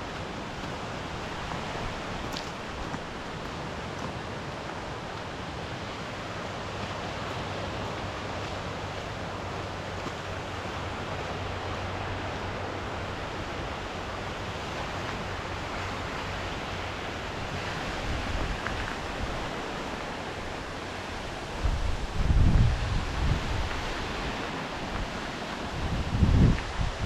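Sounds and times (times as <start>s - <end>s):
sea surf rushing: 0.0s - 27.0s
wind: 0.0s - 27.0s
wind buffeting microphone: 7.1s - 27.0s.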